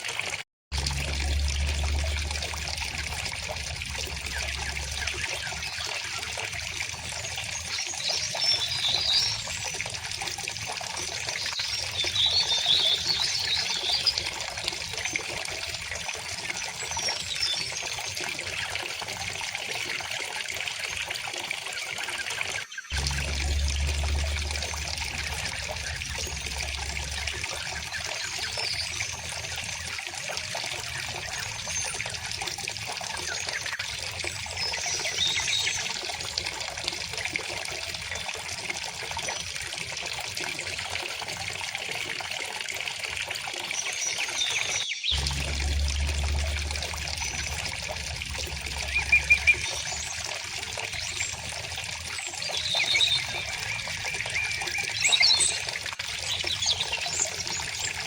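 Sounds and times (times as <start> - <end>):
stream trickling and burbling: 0.0 - 58.0
birds chirping: 44.0 - 55.7.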